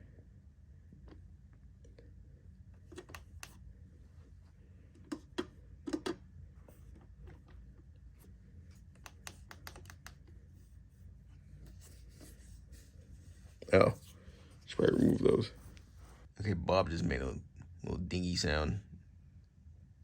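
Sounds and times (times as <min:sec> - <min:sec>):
light clicks and taps of plastic: 0:08.8 - 0:10.4.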